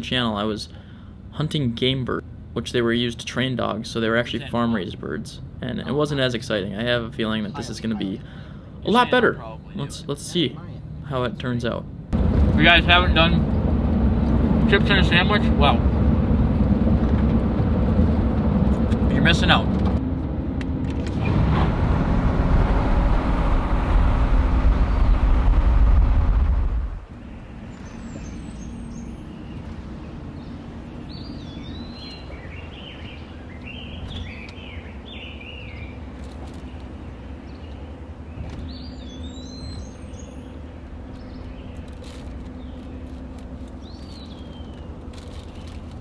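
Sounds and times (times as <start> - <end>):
truck road rumble: 0.0 - 46.0
small birds chirping and whistling: 27.6 - 29.7, 30.4 - 36.0, 38.4 - 40.6.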